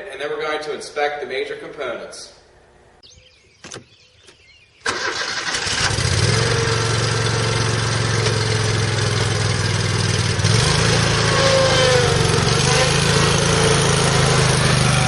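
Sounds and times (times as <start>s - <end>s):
mower engine starting and running: 4.8s - 15.0s.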